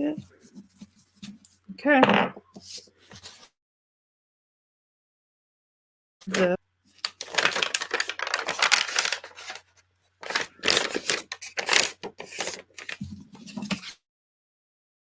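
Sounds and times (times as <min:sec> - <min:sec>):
paper and card rustling: 0:00.1 - 0:01.6, 0:02.6 - 0:03.5, 0:06.3 - 0:14.0.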